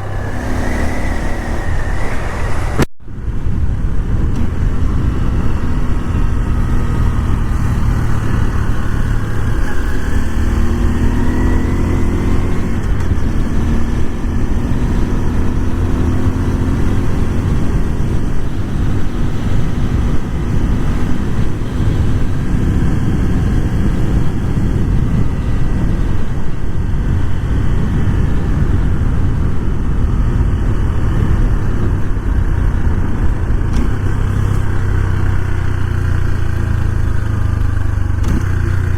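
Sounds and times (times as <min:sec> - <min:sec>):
gliding rising tones: 0:00.0 - 0:02.9
motorcycle engine running: 0:00.0 - 0:38.9
wind and road noise: 0:00.0 - 0:38.9.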